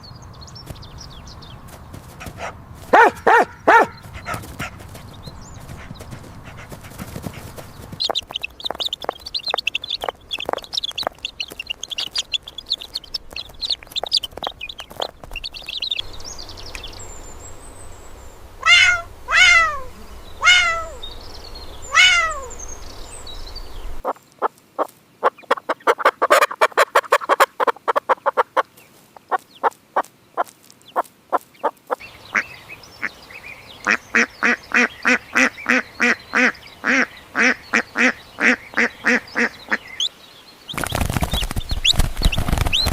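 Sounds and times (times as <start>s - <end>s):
high twittering: 0.0s - 24.1s
loud animal calls: 1.6s - 9.2s, 18.5s - 23.0s.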